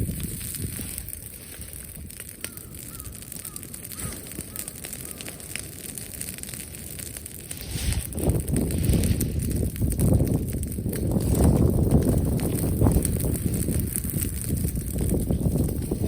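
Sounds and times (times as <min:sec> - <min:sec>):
bonfire crackling and popping: 0:00.0 - 0:16.0
bird calls: 0:02.4 - 0:05.5.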